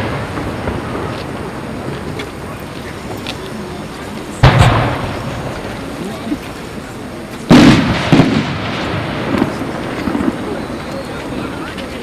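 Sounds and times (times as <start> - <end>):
firework shells booming: 0.0 - 12.0
rumble after booms: 0.0 - 12.0
small firework bang: 4.4 - 5.9, 7.5 - 11.3.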